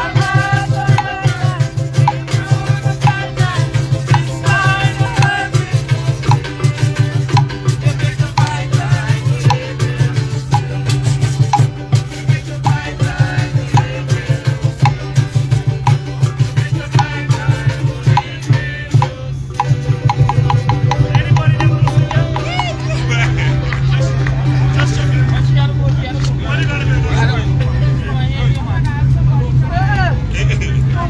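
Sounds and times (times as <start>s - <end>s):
drums beaten in fast rhythm: 0.0s - 25.7s
rattles shaking: 19.6s - 23.5s.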